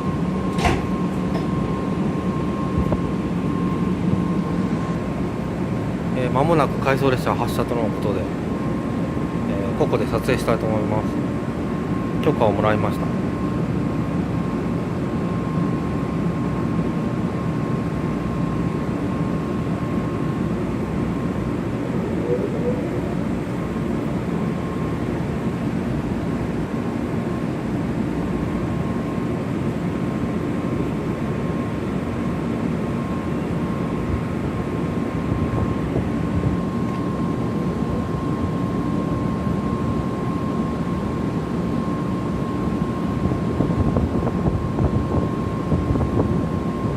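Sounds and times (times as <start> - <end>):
train equipment whooshing hum: 19.2 - 26.6
thin high tone: 21.6 - 23.6.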